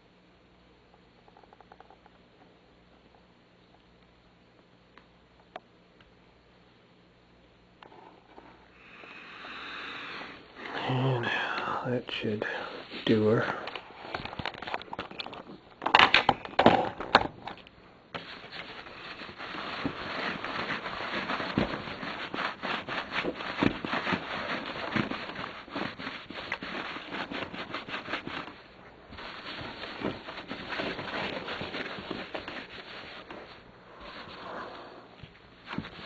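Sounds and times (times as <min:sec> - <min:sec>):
cloth rubbing a pinball playfield: 0:18.2 - 0:36.0.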